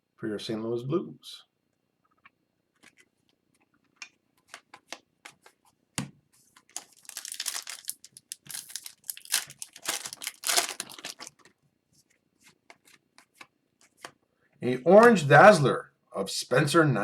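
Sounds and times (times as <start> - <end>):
foil wrapper crinkling and tearing: 6.7 - 11.5.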